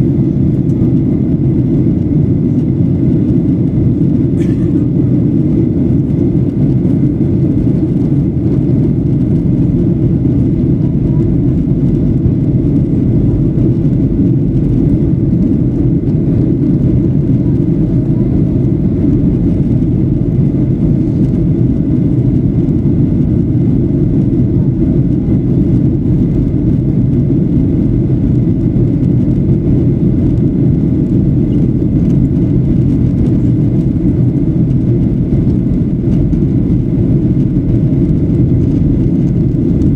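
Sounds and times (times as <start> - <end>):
airplane cabin noise: 0.0 - 39.9.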